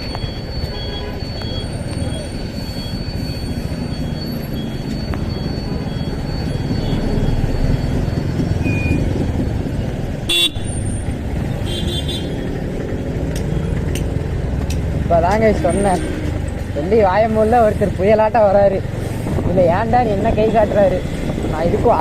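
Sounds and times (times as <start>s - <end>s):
motorcycle engine and road rumble: 0.0s - 22.0s
vehicle horn toots: 10.3s - 10.7s, 11.6s - 12.5s.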